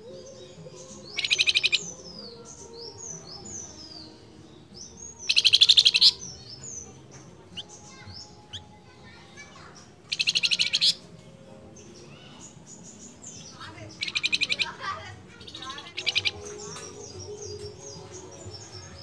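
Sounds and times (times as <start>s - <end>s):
bird trills: 0.7s - 3.8s, 4.9s - 8.8s, 9.7s - 11.0s, 13.3s - 14.8s, 15.4s - 19.0s.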